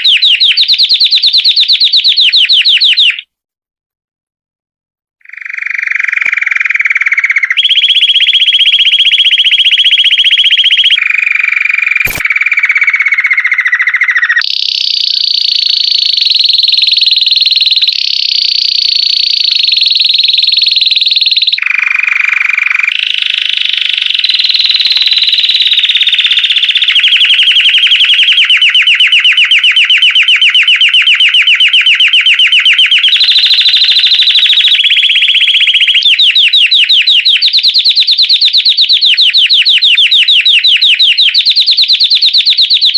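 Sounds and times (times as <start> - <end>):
canary singing rolling trills: 0.0 - 3.2, 5.2 - 42.9
sharp click: 12.0 - 12.4.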